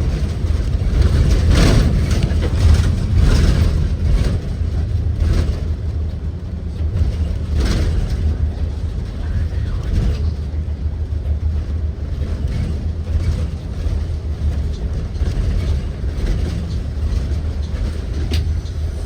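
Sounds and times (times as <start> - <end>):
short knocks and rattles: 0.0 - 9.0
bus engine and road rumble: 0.0 - 19.0.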